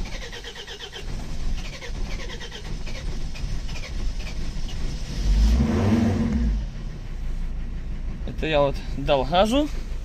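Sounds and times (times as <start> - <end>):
engine revving: 0.0 - 8.5
diesel engine running rough: 0.0 - 10.0.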